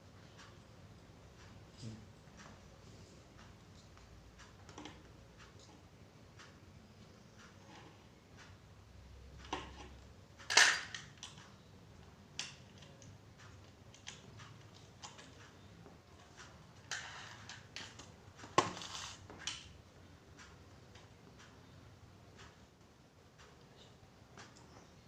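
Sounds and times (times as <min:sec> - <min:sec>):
hard items clicking and knocking: 0:09.4 - 0:11.4, 0:16.3 - 0:19.7.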